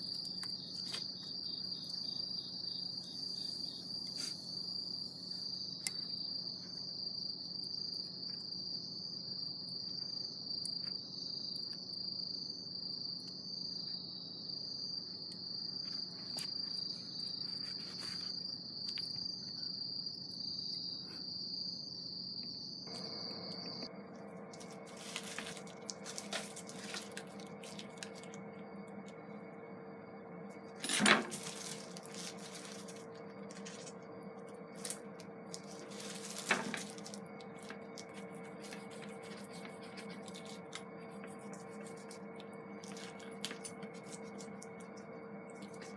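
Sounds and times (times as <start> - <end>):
steady low hum: 22.1 - 45.9
insect trilling: 22.9 - 45.9.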